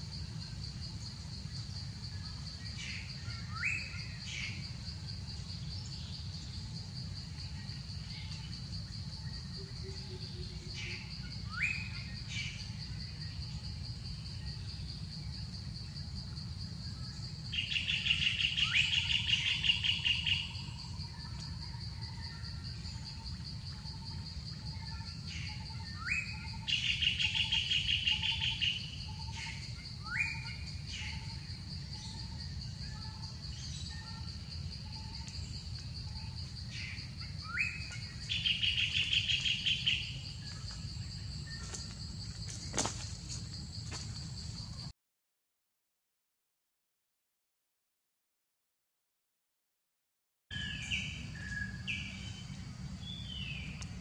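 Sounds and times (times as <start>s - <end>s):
forest birds calling: 0.0s - 44.9s, 50.5s - 54.0s
high-pitched insect drone: 0.0s - 44.9s.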